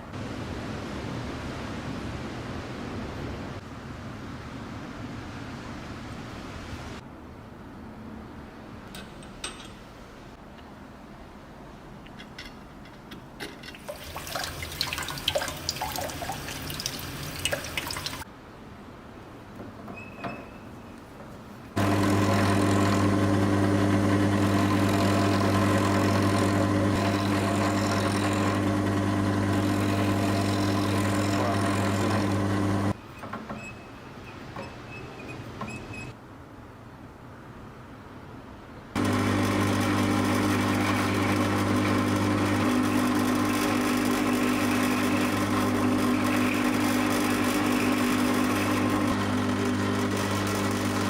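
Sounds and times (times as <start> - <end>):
electric machine humming: 21.8 - 33.0, 39.0 - 51.0.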